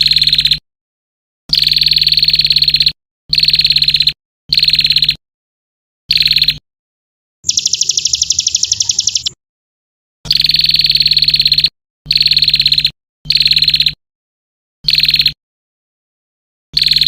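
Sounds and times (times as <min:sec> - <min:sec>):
songbird trilling: 0:07.4 - 0:09.4.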